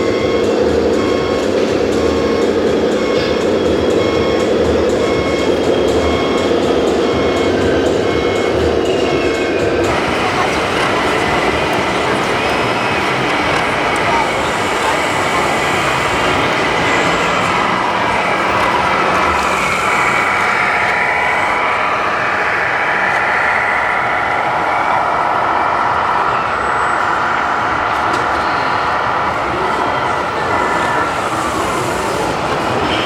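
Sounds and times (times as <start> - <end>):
small electric motors whining: 0.0 - 25.0
mechanical noise: 0.0 - 33.0.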